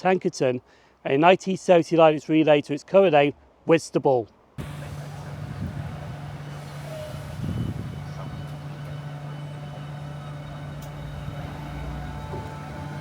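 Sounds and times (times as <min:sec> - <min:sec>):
electric train humming: 0:04.6 - 0:13.0
train rumble: 0:04.6 - 0:13.0.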